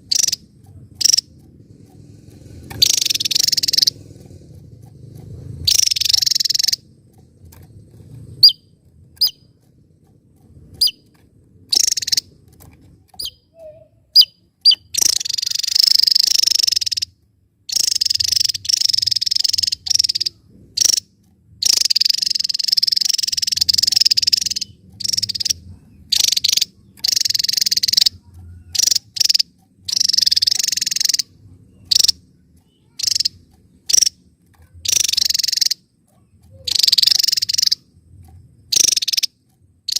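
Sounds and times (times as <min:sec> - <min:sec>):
bird singing high sharp notes: 0:02.7 - 0:04.0, 0:05.7 - 0:06.8, 0:11.7 - 0:12.3, 0:13.2 - 0:17.1, 0:17.7 - 0:21.0, 0:21.6 - 0:34.2, 0:36.5 - 0:37.8.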